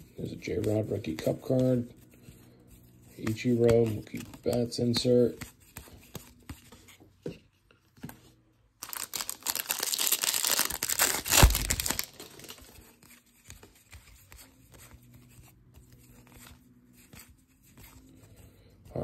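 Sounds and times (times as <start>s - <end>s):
cards being handled: 0.0s - 19.0s
foil wrapper snapping: 8.8s - 12.6s
foil wrapper tearing and crinkling: 8.8s - 12.7s.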